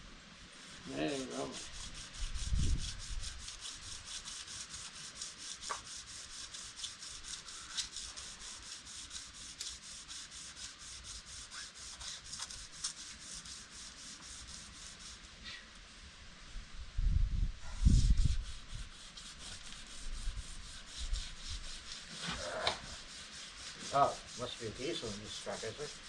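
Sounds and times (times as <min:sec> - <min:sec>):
sandpaper rubbing on metal panels: 0:00.5 - 0:15.6, 0:17.8 - 0:26.0.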